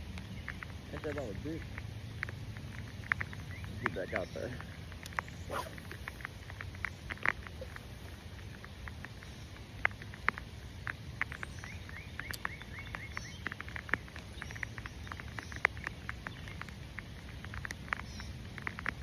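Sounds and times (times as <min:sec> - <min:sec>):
steady low rumble: 0:00.0 - 0:13.0
raindrops pattering: 0:00.0 - 0:19.0.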